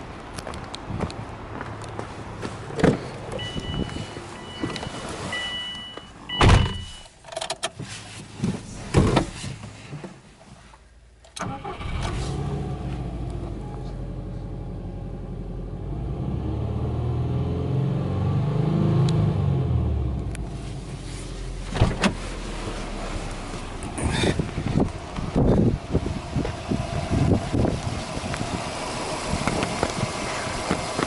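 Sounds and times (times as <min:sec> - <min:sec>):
two-tone warning chime: 0:03.4 - 0:07.0
car engine starting and idling: 0:11.1 - 0:31.0.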